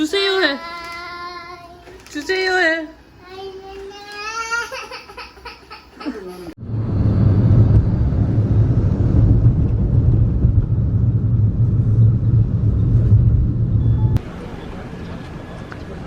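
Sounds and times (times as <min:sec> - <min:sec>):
child's voice: 0:00.5 - 0:02.1, 0:03.2 - 0:05.4
vehicle interior rumble: 0:06.6 - 0:16.0.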